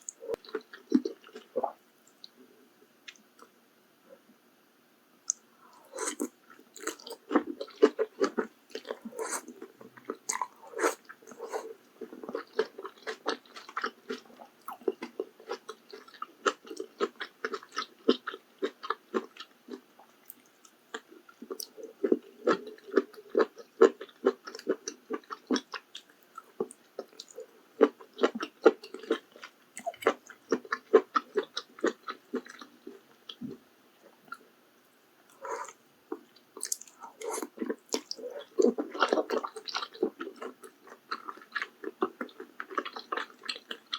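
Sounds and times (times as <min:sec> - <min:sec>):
wet crunchy chewing: 0:05.7 - 0:32.7.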